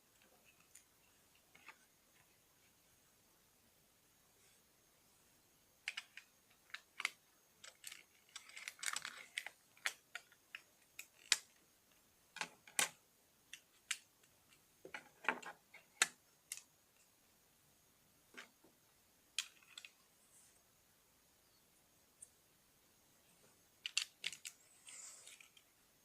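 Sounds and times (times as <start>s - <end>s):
plastic bricks clicking: 5.8s - 11.6s, 19.3s - 20.0s, 23.8s - 25.7s.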